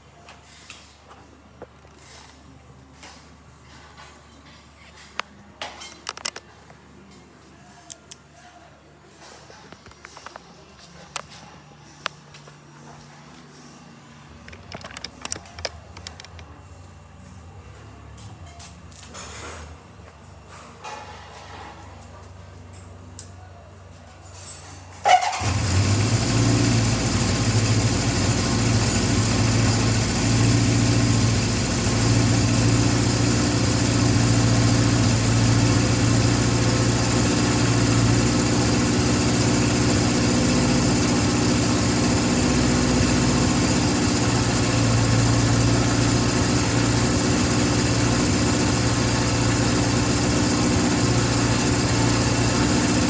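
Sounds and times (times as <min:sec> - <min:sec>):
motorcycle starter cranking: 0:25.0 - 0:53.0
motorcycle engine idling: 0:25.1 - 0:53.0.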